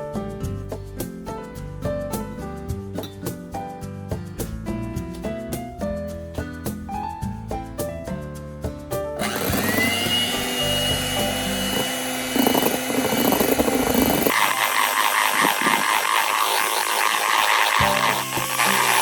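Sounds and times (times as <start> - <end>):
soft piano music: 0.0 - 9.2
electric hand mixer running: 9.2 - 19.0.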